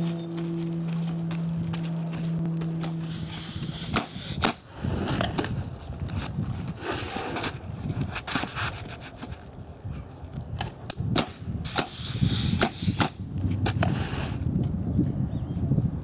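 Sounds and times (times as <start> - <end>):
short burst of hiss: 2.8 - 4.6, 11.7 - 13.2.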